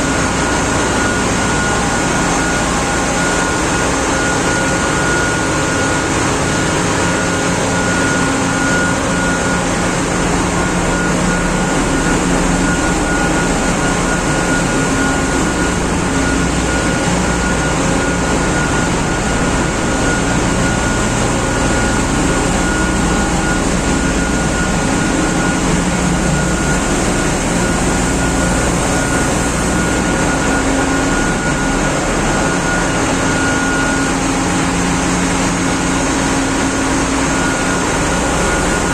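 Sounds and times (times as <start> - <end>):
engine room machinery drone: 0.0 - 38.9
thin high whine: 0.0 - 38.9.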